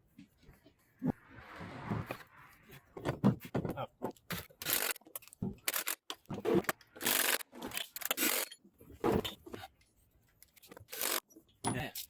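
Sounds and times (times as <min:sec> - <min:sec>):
scrapes and knocks of tool work: 0:02.7 - 0:12.0.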